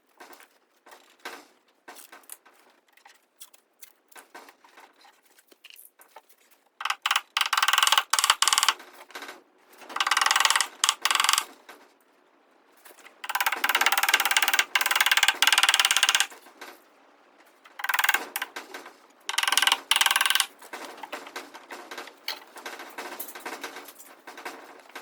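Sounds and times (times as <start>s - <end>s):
power tool rattling bursts: 6.8s - 8.8s, 9.9s - 11.5s, 13.2s - 16.3s, 17.8s - 18.6s, 19.3s - 20.6s.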